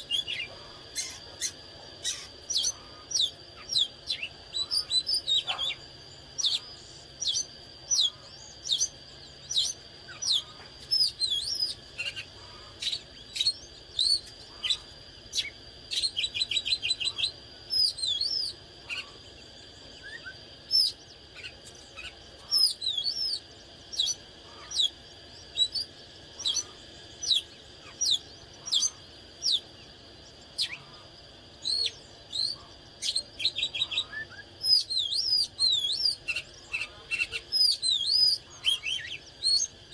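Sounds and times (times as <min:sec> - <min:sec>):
bird singing whistled phrases: 0:31.6 - 0:39.7.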